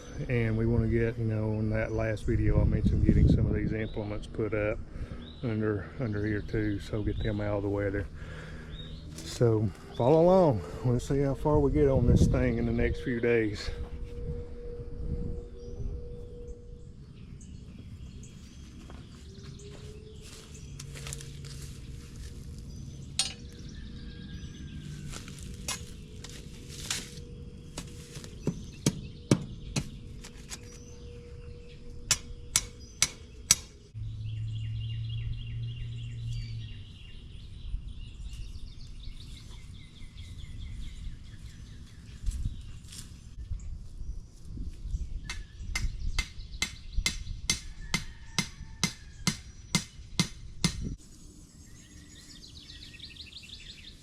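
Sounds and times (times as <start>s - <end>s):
birds chirping: 0.0s - 54.0s
sharp knocks and clanks: 27.8s - 30.0s
low rumble: 33.9s - 38.2s.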